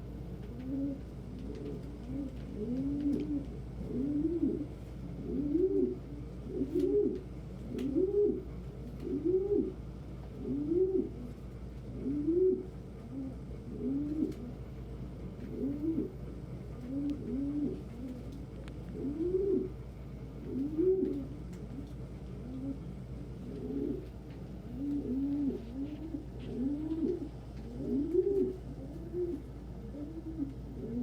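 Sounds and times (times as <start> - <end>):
pigeons cooing: 0.4 - 31.0.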